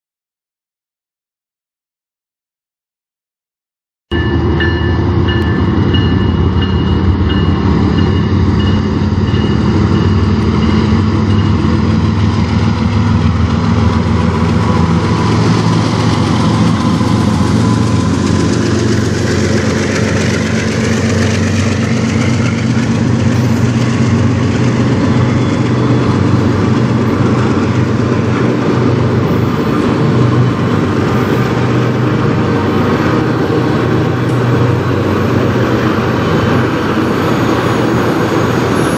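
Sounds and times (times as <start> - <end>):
bell ringing: 4.1 - 11.7
diesel locomotive engine running: 4.1 - 38.9
train wheels clattering over rail joints: 5.4 - 38.9.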